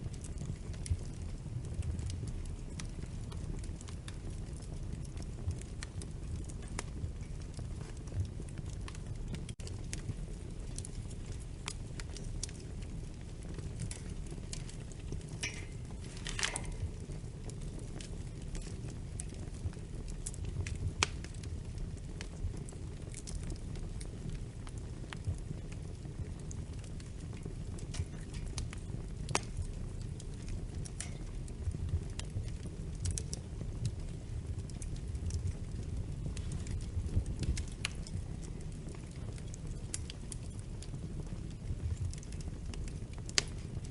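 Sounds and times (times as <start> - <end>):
low fire rumble: 0.0 - 43.9
wood fire crackling: 0.0 - 43.9
fire hissing flare: 11.3 - 19.9.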